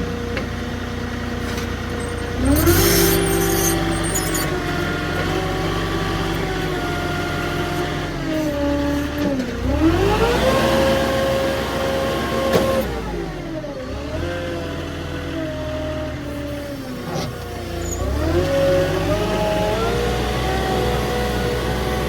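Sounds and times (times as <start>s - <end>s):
truck engine running: 0.0s - 12.3s.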